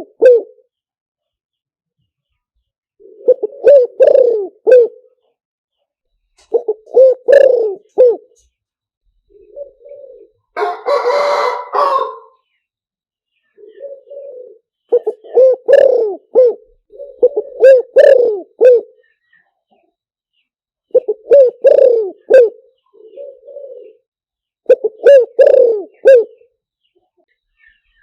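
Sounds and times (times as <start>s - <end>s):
dove cooing: 0.0s - 0.7s, 3.0s - 5.2s, 6.4s - 8.4s, 9.3s - 12.4s, 13.6s - 19.1s, 20.9s - 26.5s.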